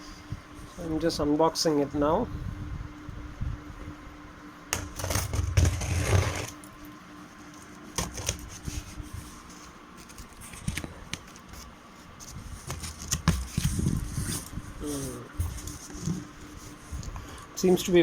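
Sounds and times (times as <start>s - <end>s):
cardboard box rustling and scraping: 5.0s - 6.6s.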